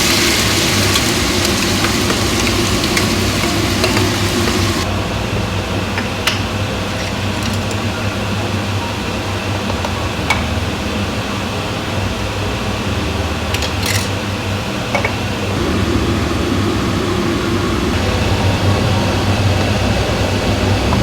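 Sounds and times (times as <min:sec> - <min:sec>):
fan-like hum: 0:00.0 - 0:21.0
kitchen clicks and taps: 0:00.9 - 0:04.9.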